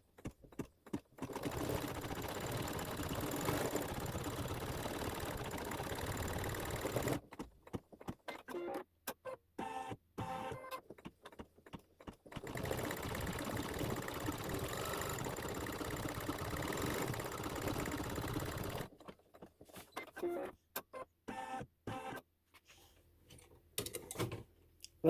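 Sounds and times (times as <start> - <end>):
embroidery machine stitching: 1.2 - 8.8, 9.6 - 20.5.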